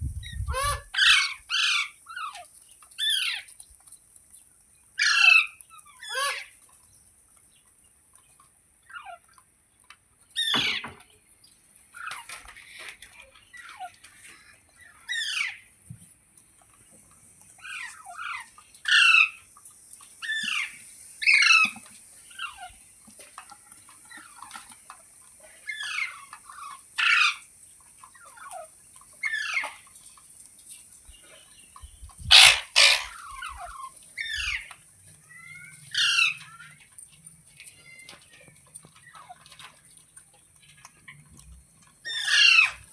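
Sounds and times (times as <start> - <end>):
parrot harsh calls: 0.5 - 2.4, 5.0 - 6.6, 15.0 - 15.6, 17.6 - 19.4, 20.2 - 21.8, 25.7 - 27.4, 32.3 - 34.7, 35.3 - 36.7, 42.1 - 42.8.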